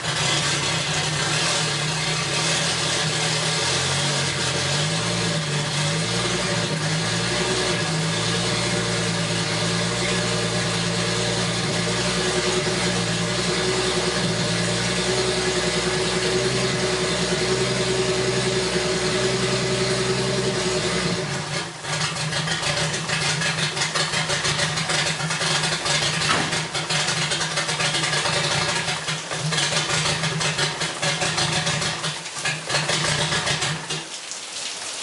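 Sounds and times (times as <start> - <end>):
car engine idling roughly: 0.0 - 34.1.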